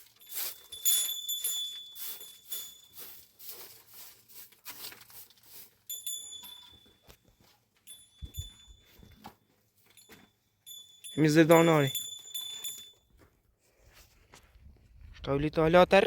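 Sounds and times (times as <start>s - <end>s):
thin high metallic ringing: 0.0s - 3.4s, 5.9s - 13.1s
rustling and handling objects: 0.0s - 15.2s.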